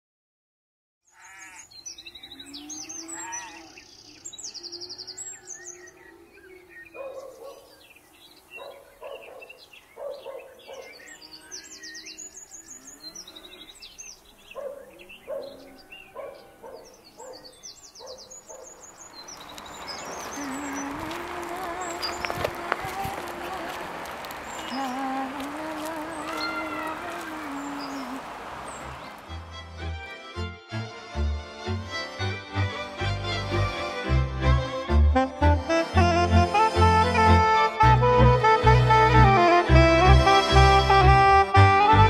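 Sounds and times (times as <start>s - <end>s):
songbirds chirping and trilling: 1.0s - 30.9s.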